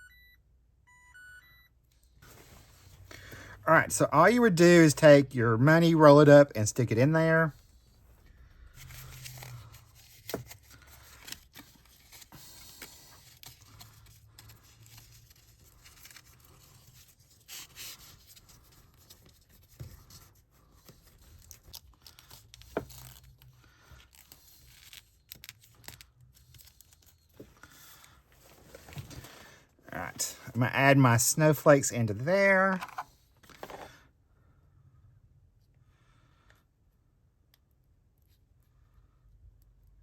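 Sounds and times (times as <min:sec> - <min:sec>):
paper rustling: 0:07.9 - 0:29.6.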